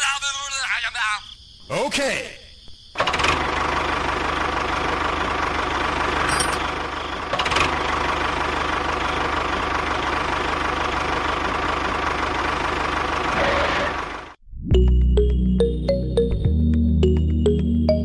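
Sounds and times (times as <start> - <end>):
small engine chugging: 3.0 - 14.4.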